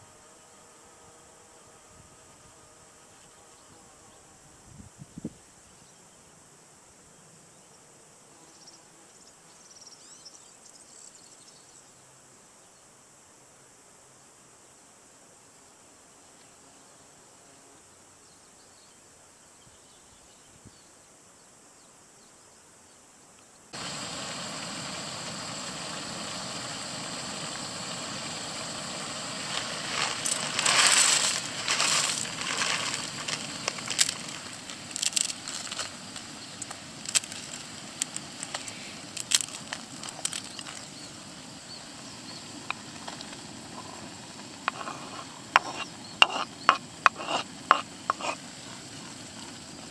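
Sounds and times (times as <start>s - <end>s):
faint outdoor background: 0.0s - 49.9s
frying sizzle: 23.8s - 44.6s
utensil stirring in pan: 43.7s - 49.5s.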